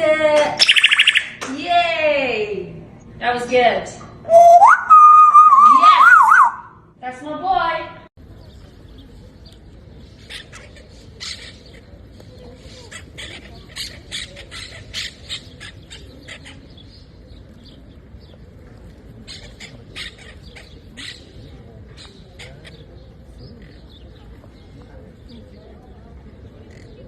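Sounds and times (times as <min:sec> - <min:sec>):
parrot chirps and squawks: 0:10.2 - 0:11.8, 0:12.6 - 0:16.7, 0:19.3 - 0:21.3.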